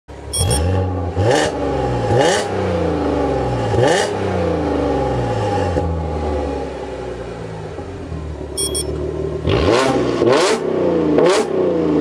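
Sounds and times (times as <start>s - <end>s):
car engine idling and revving: 0.1s - 12.0s.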